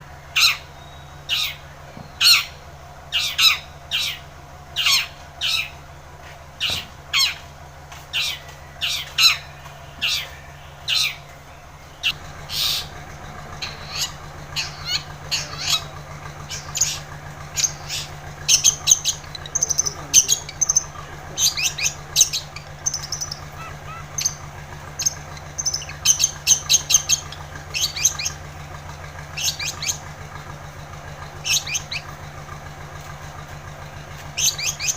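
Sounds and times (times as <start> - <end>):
shrike calling harsh notes: 8.2 - 28.6.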